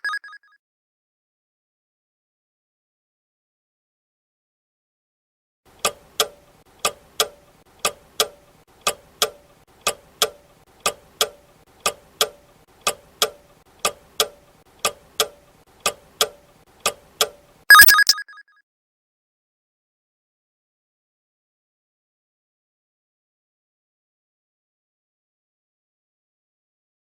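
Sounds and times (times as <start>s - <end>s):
clock tick-tock: 5.8s - 17.5s
ringing alarm: 17.7s - 18.3s.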